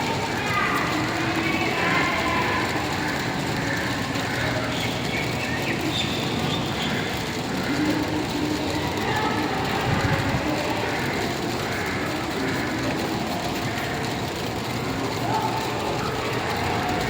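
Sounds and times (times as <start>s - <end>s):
faint voices: 0.0s - 17.0s
rumbling background noise: 0.0s - 17.0s.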